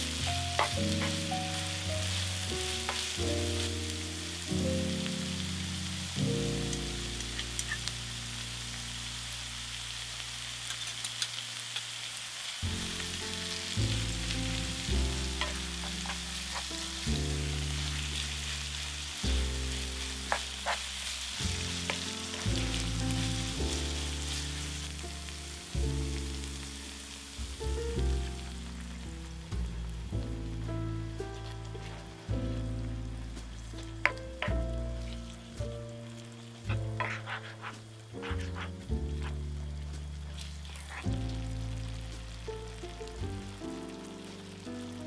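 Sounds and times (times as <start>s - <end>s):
soft background music: 0.0s - 10.8s, 12.6s - 45.0s
food sizzling in oil: 0.0s - 45.0s
utensil clicking against pan: 10.7s - 11.9s.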